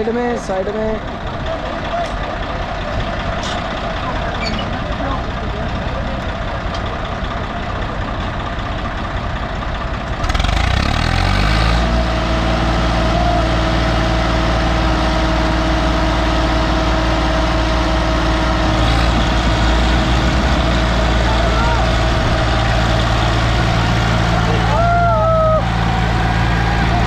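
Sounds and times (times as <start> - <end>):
tractor engine revving: 0.0 - 27.0.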